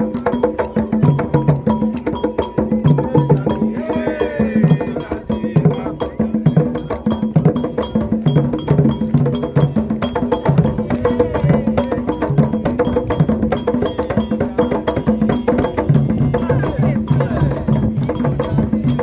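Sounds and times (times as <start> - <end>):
hand drums in fast rhythm: 0.0 - 19.0.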